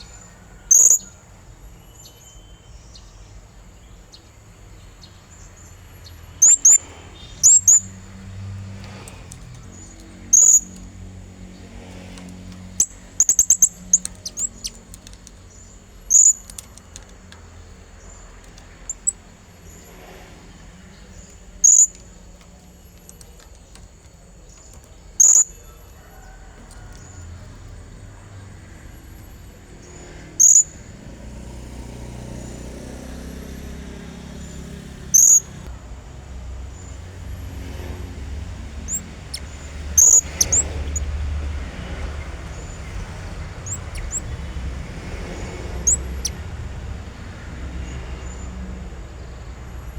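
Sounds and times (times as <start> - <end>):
parrot high chirps: 0.7 - 1.1, 6.4 - 7.9, 10.2 - 10.8, 12.8 - 14.8, 16.1 - 16.6, 18.9 - 19.2, 21.6 - 22.0, 25.2 - 25.5, 30.4 - 30.7, 35.2 - 35.5, 38.9 - 41.0, 45.8 - 46.4.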